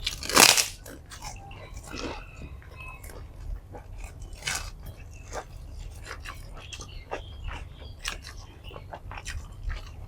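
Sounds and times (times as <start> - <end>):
crunchy bite: 0.0 - 2.2, 4.0 - 6.9
wet chewing: 0.0 - 10.0.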